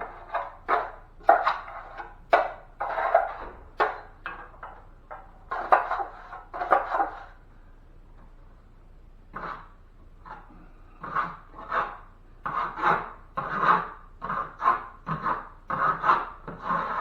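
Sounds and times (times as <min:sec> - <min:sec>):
knife scraping a mud pan: 0:00.0 - 0:04.8, 0:05.4 - 0:07.4, 0:09.3 - 0:17.0.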